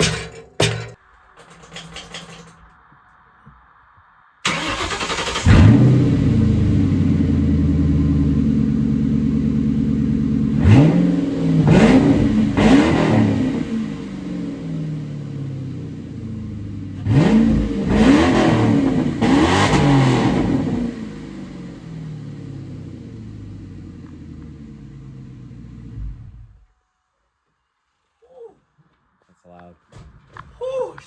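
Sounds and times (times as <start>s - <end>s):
loud car engine idling and revving: 4.5s - 26.6s.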